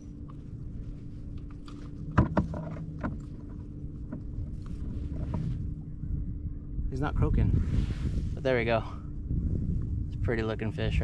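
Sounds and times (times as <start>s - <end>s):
wind and water rumble: 0.0s - 11.0s
knocks and rattles on kayak: 1.4s - 5.6s.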